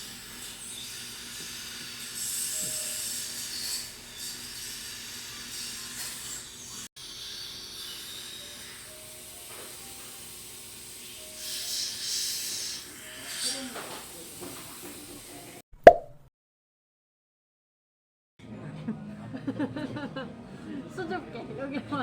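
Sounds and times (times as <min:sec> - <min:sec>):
faint background music: 0:18.4 - 0:22.0.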